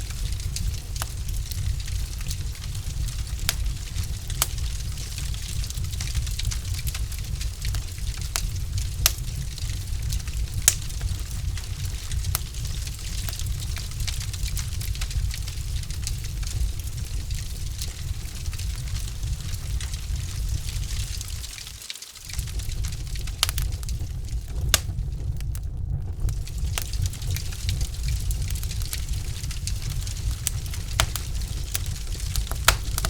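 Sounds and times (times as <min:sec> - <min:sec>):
wood fire crackling and popping: 0:00.0 - 0:33.0
low rumble: 0:22.4 - 0:33.0.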